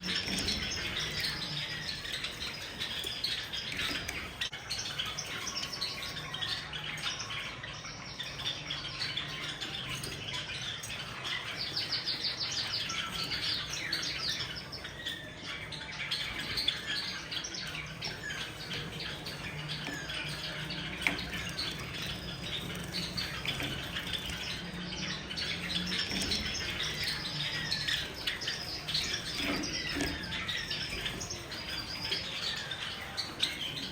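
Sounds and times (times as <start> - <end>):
sparrows chirping: 0.0 - 33.9.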